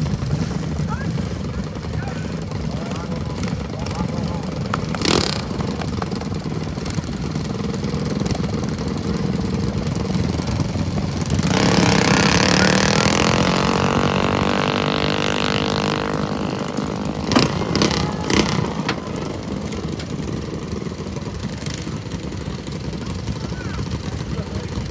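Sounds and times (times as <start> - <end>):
minibike engine running hard: 0.0 - 24.9.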